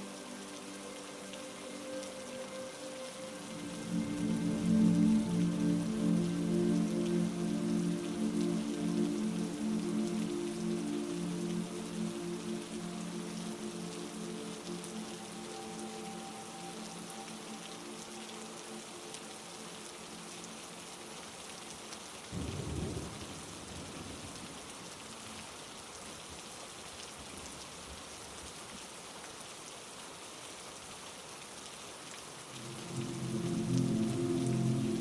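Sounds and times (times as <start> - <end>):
low held chord of tones: 0.0 - 20.9, 32.5 - 35.0
heavy rain: 0.0 - 35.0.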